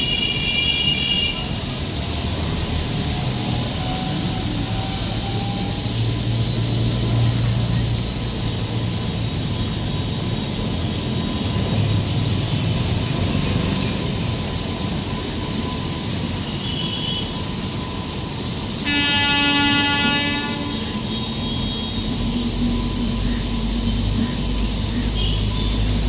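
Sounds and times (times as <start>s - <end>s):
train horn: 0.0s - 1.6s, 16.6s - 17.4s, 18.8s - 22.2s
moving train rumble: 0.0s - 26.0s.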